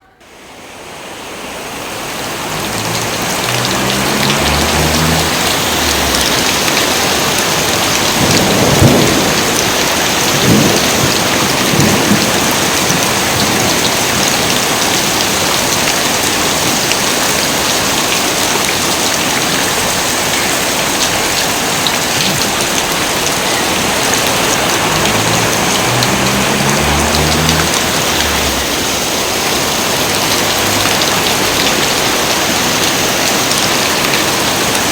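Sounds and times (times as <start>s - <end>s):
heavy rain falling: 0.2s - 34.9s
thunder cracks and rumbles: 2.7s - 15.2s.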